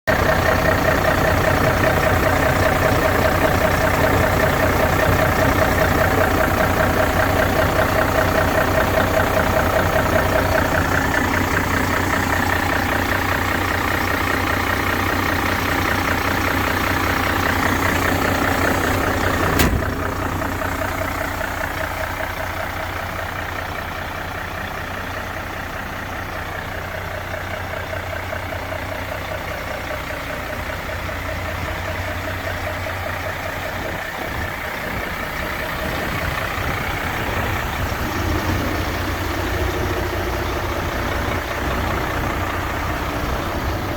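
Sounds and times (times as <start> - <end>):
diesel truck engine idling: 0.1 - 43.9
sharp click: 19.6 - 20.0.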